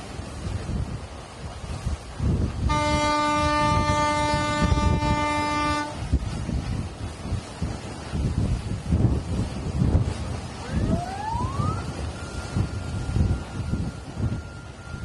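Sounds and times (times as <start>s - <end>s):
wind rumbling: 0.0s - 15.0s
boat horn blast: 2.6s - 6.4s.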